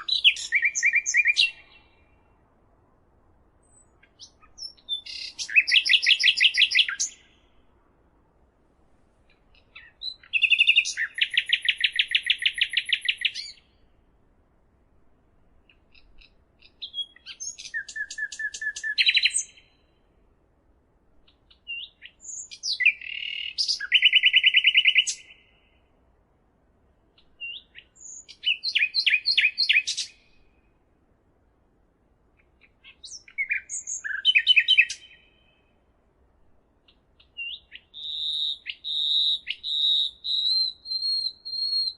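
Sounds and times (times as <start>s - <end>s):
songbird trilling and chirping: 0.0s - 2.1s, 3.6s - 7.5s, 9.3s - 13.8s, 15.7s - 19.8s, 21.3s - 25.6s, 27.2s - 30.4s, 32.4s - 35.6s, 36.8s - 41.9s.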